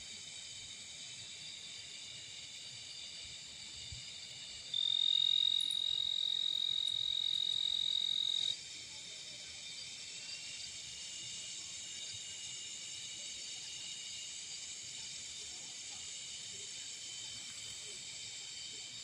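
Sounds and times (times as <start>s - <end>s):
insects trilling: 0.2s - 19.0s
high steady whistling tone: 1.4s - 8.6s.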